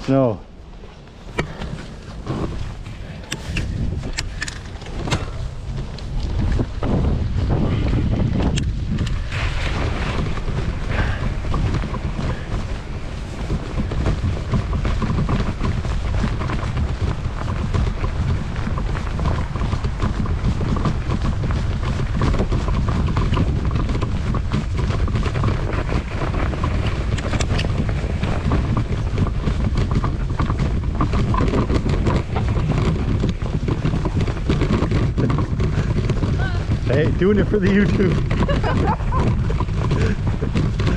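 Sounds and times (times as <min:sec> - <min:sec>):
bicycle tyres on snow: 0:00.0 - 0:40.9
bike clicks and rattles: 0:00.0 - 0:40.9
wind rumbling on microphone: 0:00.0 - 0:40.9.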